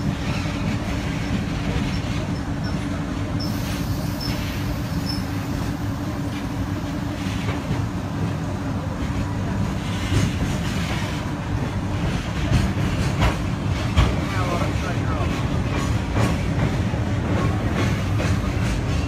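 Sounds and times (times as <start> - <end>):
train rumbling on track: 0.0 - 19.0
train wheel knocks: 11.9 - 14.4, 15.3 - 19.0.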